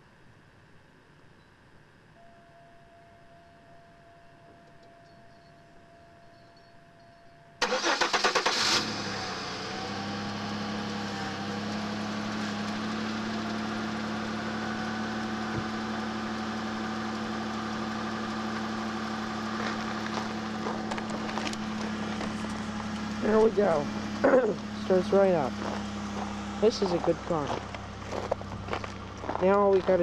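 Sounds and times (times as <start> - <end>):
starter motor cranking: 7.6 - 9.1
car engine idling: 7.6 - 30.0.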